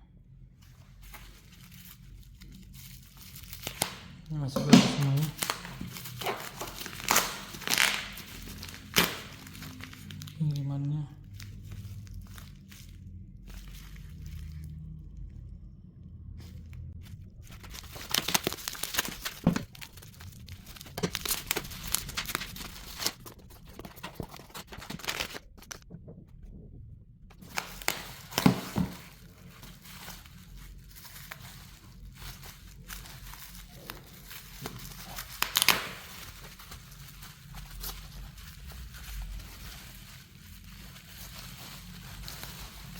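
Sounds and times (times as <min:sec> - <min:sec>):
packaging crinkling and rustling: 0:00.6 - 0:15.0, 0:16.5 - 0:25.9, 0:27.3 - 0:42.9
packaging ripping: 0:01.0 - 0:10.4, 0:17.1 - 0:25.8, 0:27.4 - 0:42.9.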